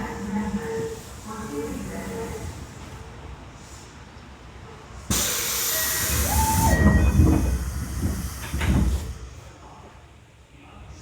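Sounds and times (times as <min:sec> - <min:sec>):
loud hiss of air: 0:05.1 - 0:09.5
squealing tones: 0:05.7 - 0:07.4.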